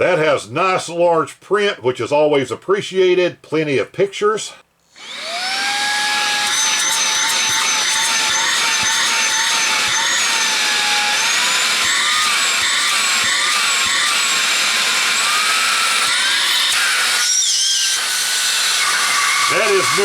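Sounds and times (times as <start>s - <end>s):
handheld vacuum motor whining: 4.9s - 20.0s.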